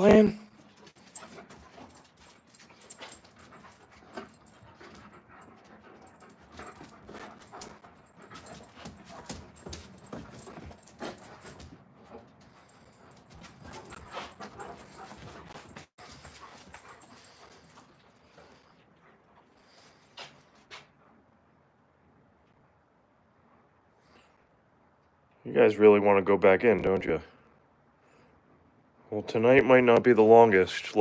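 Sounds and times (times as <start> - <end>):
puppies: 0.0 - 21.4.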